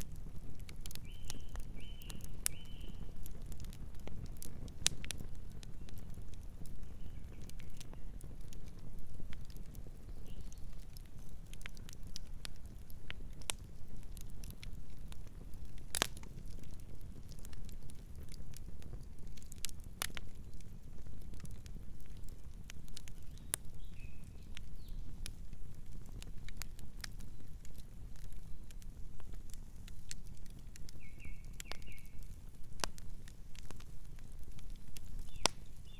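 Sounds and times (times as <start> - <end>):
wood fire crackling and popping: 0.0 - 35.9
faint bird chirp: 1.0 - 3.1, 23.2 - 25.1, 31.0 - 32.3.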